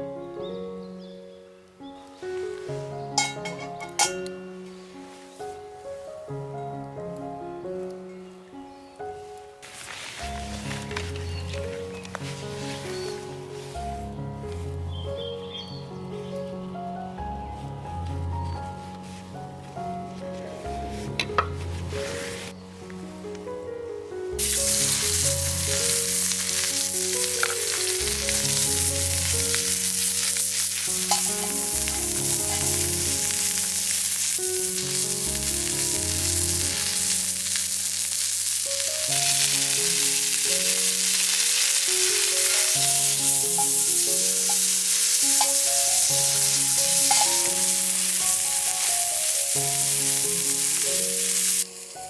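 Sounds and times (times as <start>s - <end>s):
background music: 0.0s - 52.0s
food sizzling in a pan: 3.1s - 4.4s, 24.4s - 52.0s.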